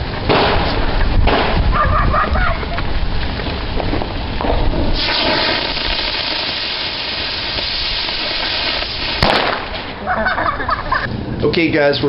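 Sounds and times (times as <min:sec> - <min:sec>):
gunpowder burning with hiss: 0:02.9 - 0:10.0.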